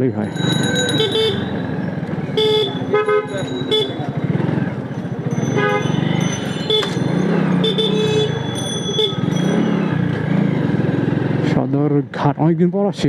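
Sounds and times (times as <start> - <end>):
dense city traffic: 0.0 - 13.0
motorcycle engine running: 0.2 - 11.8
short vehicle horn toots: 2.3 - 4.1.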